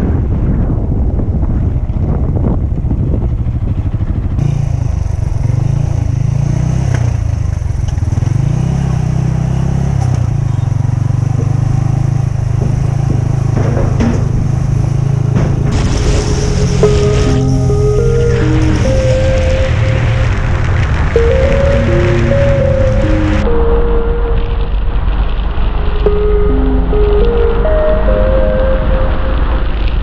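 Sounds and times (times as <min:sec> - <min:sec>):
wind and road noise: 0:00.0 - 0:30.0
motorcycle engine running: 0:01.2 - 0:23.5.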